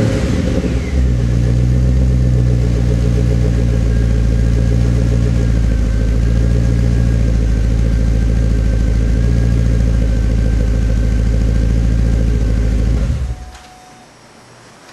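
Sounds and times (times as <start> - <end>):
car engine idling: 0.0 - 13.5.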